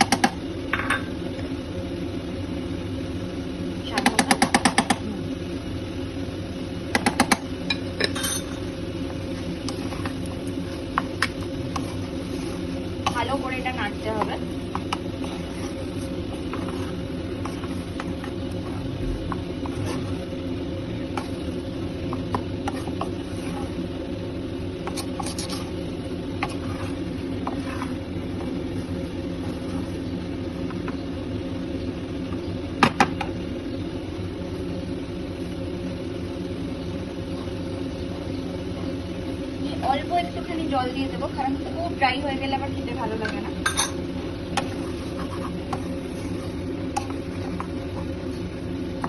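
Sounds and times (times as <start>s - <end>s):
steady low hum: 0.0s - 49.0s
spatula scraping and tapping pan: 14.1s - 18.7s, 22.1s - 23.8s, 24.8s - 25.7s, 26.4s - 28.6s, 43.2s - 48.1s.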